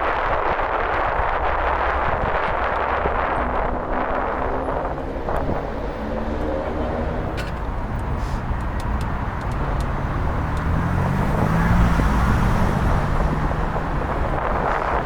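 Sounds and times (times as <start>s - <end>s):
slow city traffic: 0.0s - 15.0s
vehicle engine hum: 0.0s - 15.0s.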